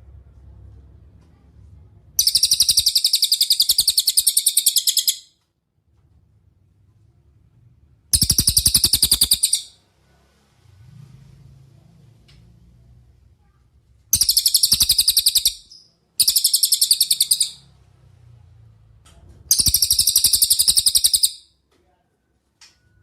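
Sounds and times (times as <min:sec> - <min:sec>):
faint low rumble: 0:00.0 - 0:02.3
songbird trilling: 0:02.2 - 0:05.3, 0:08.2 - 0:09.7, 0:14.2 - 0:17.6, 0:19.5 - 0:21.4.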